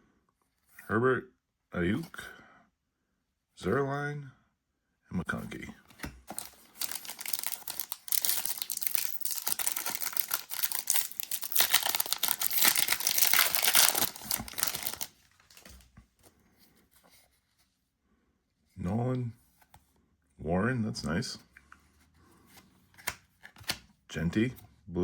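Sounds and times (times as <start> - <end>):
foil wrapper crinkling and tearing: 6.3 - 15.7.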